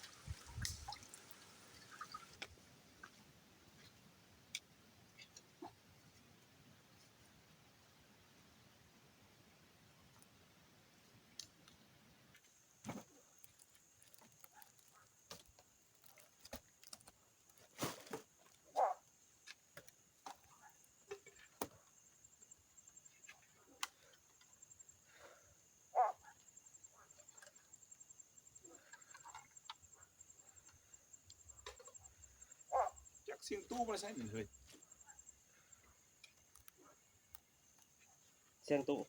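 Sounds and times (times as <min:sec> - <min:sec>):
high insect trill: 0:20.5 - 0:39.0.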